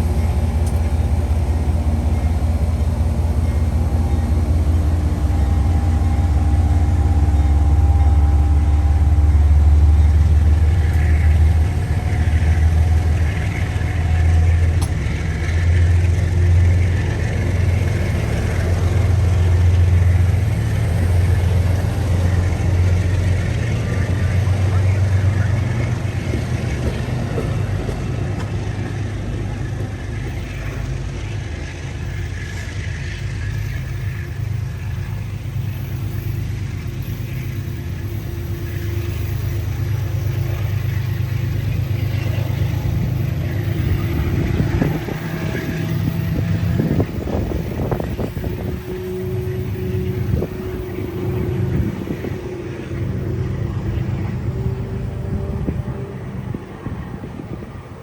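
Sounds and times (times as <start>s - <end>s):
steady tone: 0.0s - 24.3s
diesel engine rumbling: 0.0s - 58.0s.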